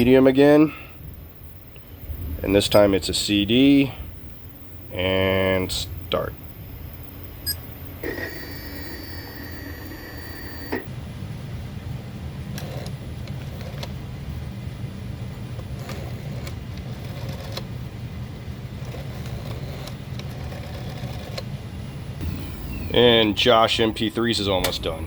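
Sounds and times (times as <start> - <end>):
motor humming: 8.0 - 10.9, 22.2 - 25.0
steady high beep: 8.3 - 10.8.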